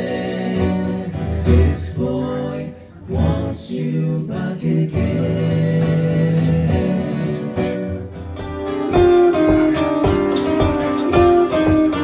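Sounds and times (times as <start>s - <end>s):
strummed acoustic guitar: 0.0s - 2.1s, 3.0s - 3.7s, 4.9s - 12.0s
plucked guitar notes: 6.8s - 12.0s.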